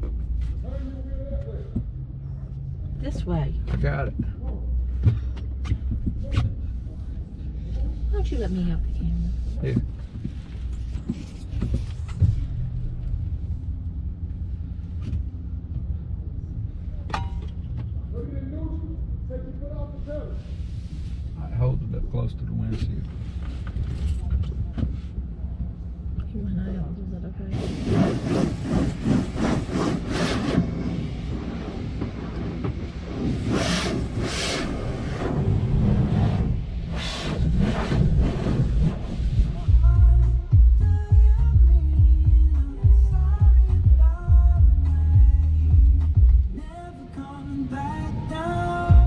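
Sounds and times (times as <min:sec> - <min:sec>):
car wash mechanical rumble: 0:00.0 - 0:49.0
car wash equipment whooshing: 0:27.4 - 0:41.0.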